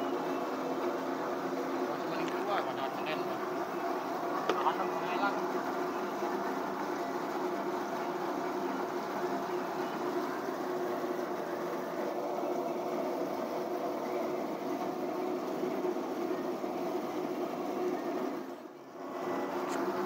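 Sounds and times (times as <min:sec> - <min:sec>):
steady machine hum: 0:00.0 - 0:20.0.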